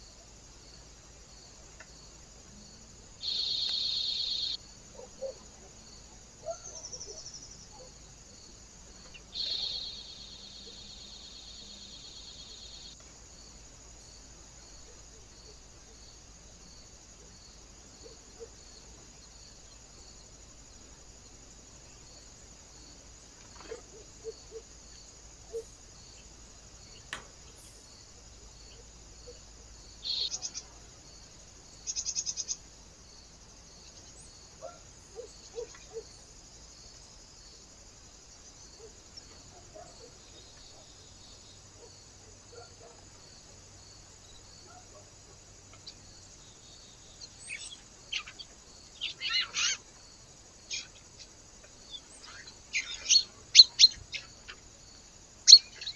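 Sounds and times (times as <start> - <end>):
steady background hiss: 0.0 - 55.9
rapid high bird trills: 3.2 - 4.6, 49.0 - 49.8
birds chirping: 3.2 - 5.4, 9.0 - 12.9, 28.7 - 30.7, 47.2 - 49.8, 50.7 - 54.6.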